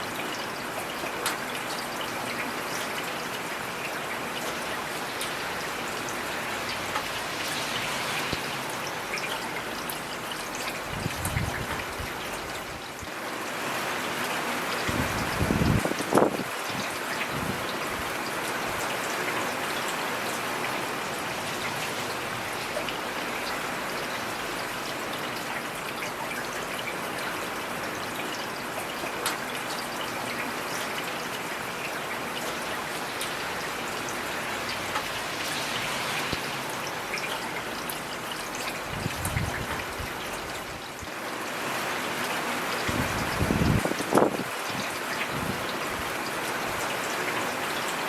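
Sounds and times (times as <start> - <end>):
heavy rain: 0.0 - 48.0.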